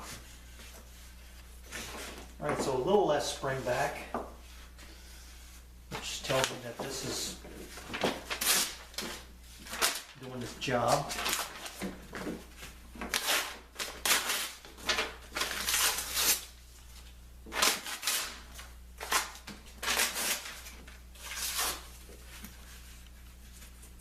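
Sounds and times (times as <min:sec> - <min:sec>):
rustling and scraping handling noises: 0:00.0 - 0:13.6, 0:19.8 - 0:24.0
steady low hum: 0:00.0 - 0:24.0.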